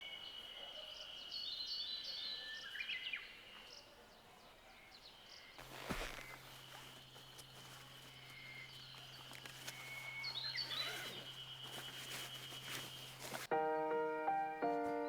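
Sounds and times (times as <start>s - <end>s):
birds chirping and calling: 5.1s - 13.5s.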